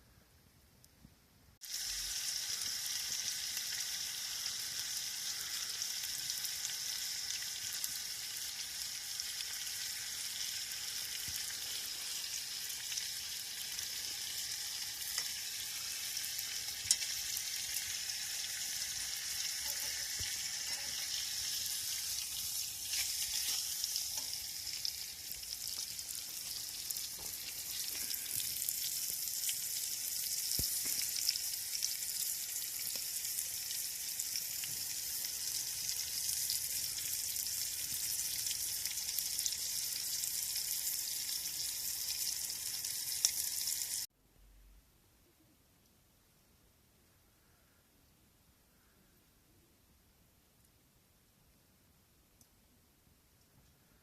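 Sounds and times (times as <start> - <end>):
food sizzling in pan: 1.6 - 44.1.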